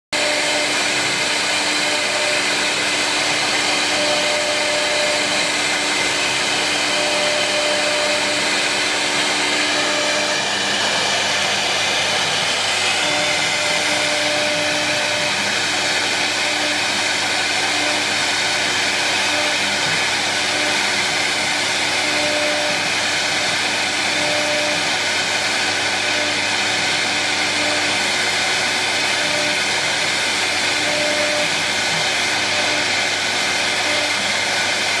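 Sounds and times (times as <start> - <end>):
router spindle hissing: 0.2 - 35.0.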